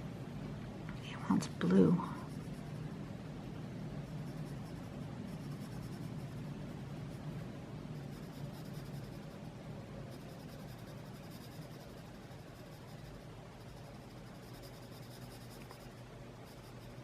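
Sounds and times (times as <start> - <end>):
colouring tool rubbing on paper: 8.0 - 17.0.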